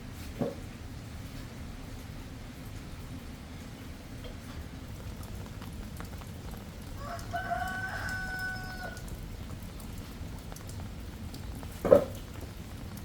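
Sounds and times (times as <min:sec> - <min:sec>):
light rain patter: 0:00.0 - 0:13.0
rooster crowing: 0:07.0 - 0:09.0.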